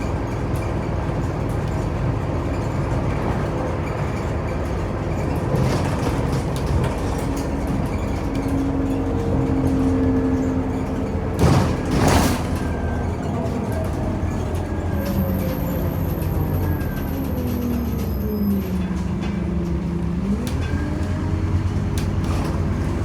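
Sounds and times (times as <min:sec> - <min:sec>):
bus engine rumble with whine: 0:00.0 - 0:23.0.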